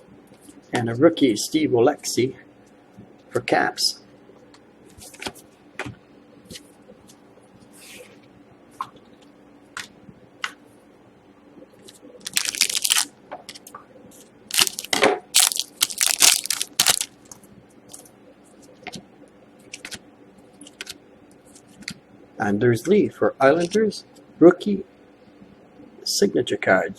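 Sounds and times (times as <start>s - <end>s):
plastic wrapper crinkling: 12.2s - 13.1s, 14.5s - 18.0s.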